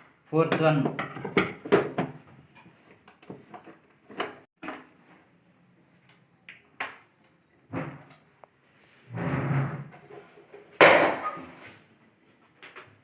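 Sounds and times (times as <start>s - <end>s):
plastic parts knocking and clicking: 0.5s - 2.2s.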